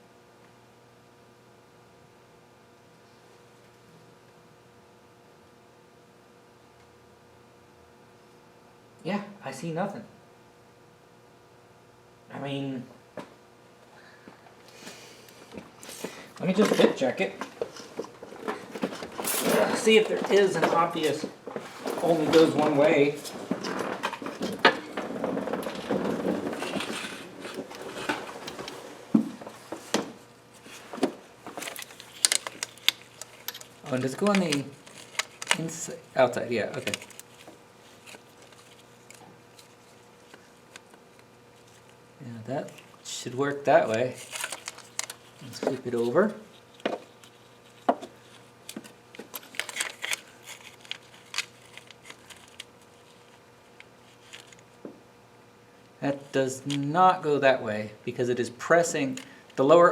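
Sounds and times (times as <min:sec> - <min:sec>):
rustling metal parts handling: 0:16.4 - 0:30.0, 0:30.6 - 0:35.9, 0:36.6 - 0:40.4, 0:43.9 - 0:53.4.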